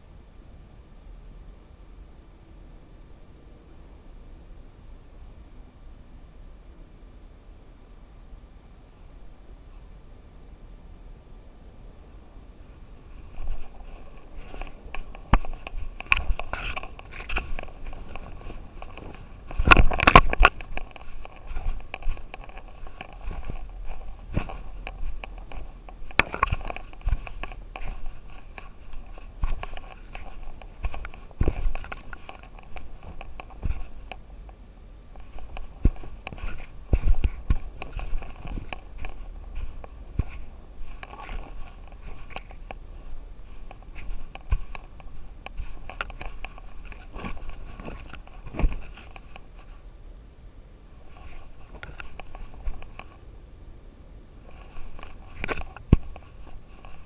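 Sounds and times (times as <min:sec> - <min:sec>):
collar camera crackling: 0:13.0 - 0:49.8, 0:51.0 - 0:53.2, 0:54.4 - 0:57.0.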